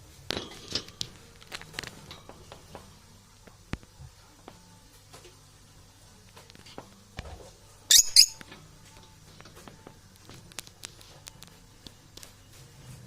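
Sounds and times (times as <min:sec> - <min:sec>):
parrot high-pitched squeaks: 0:07.9 - 0:08.4
faint clicks and taps: 0:08.4 - 0:12.4.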